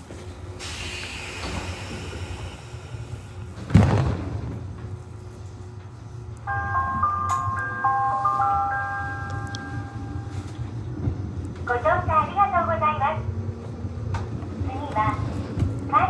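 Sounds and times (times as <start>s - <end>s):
train running rumble: 0.0s - 16.0s
hiss: 0.6s - 3.4s
station announcement voice: 6.4s - 13.6s, 14.4s - 16.0s
bell-like announcement chime: 6.5s - 10.6s.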